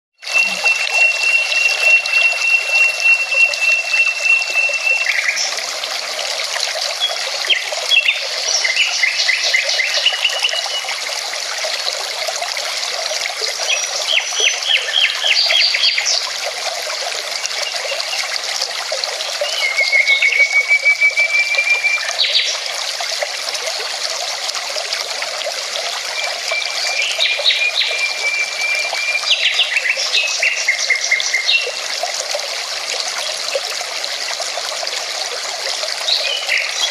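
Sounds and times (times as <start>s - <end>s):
birds chirping song: 13.6s - 16.2s.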